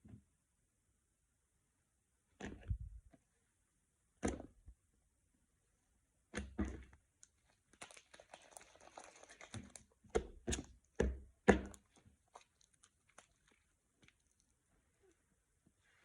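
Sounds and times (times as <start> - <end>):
slime squelching: 6.4 - 16.0.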